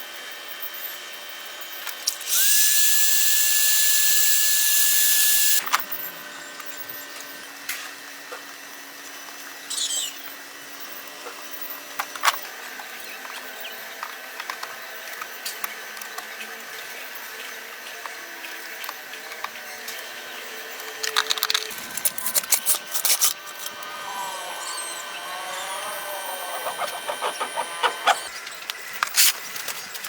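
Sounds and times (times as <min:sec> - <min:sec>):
power tool whirring: 0:00.2 - 0:11.1, 0:18.0 - 0:30.0.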